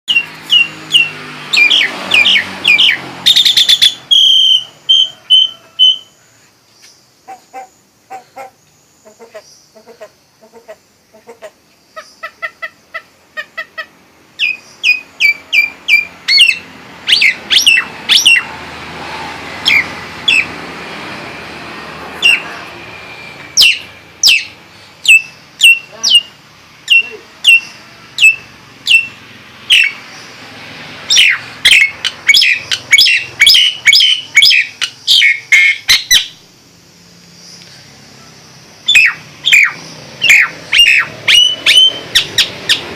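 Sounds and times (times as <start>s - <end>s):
myna loud downward whistles: 0.1s - 6.4s, 14.4s - 30.0s, 38.1s - 42.9s.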